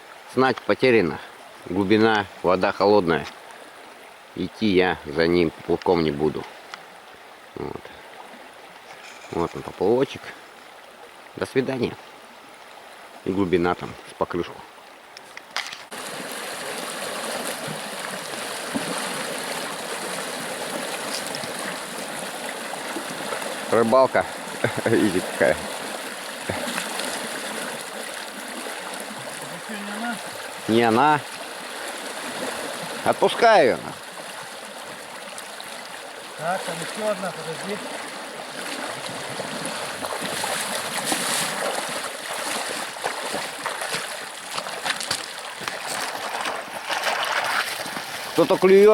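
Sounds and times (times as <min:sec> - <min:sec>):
river water flowing: 0:00.0 - 0:48.9
small splashes: 0:15.9 - 0:48.4.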